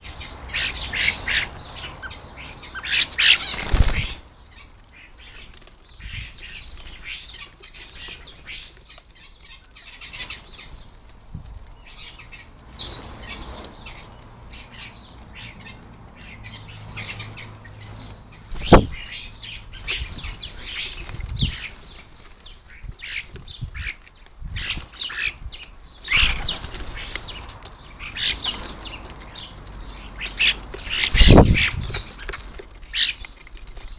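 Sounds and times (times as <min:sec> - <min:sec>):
starlings chattering and whistling: 0:00.0 - 0:10.9, 0:11.7 - 0:33.9
bird wingbeats: 0:03.3 - 0:04.2.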